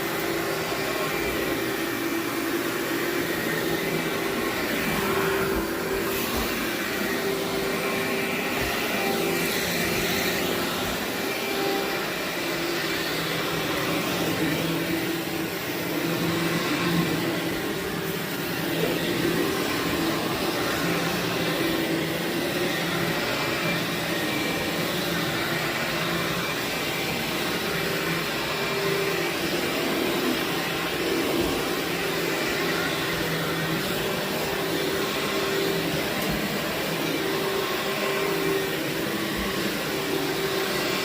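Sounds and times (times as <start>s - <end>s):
vacuum cleaner running on carpet: 0.0s - 41.0s.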